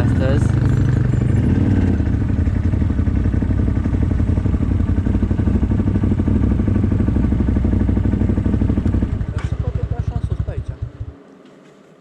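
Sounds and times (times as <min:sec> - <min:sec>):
atv engine running at low speed: 0:00.0 - 0:12.0.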